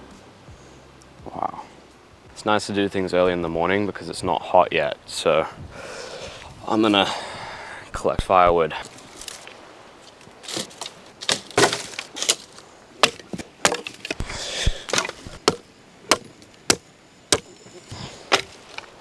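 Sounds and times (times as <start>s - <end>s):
brief rustle: 8.8s - 15.4s
firewood cracking: 8.8s - 19.0s.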